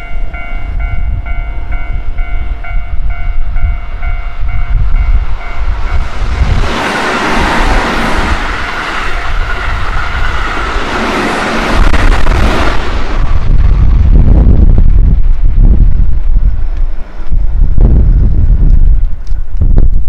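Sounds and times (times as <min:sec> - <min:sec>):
level crossing warning bell: 0:00.0 - 0:06.2
electric train passing: 0:00.0 - 0:19.3.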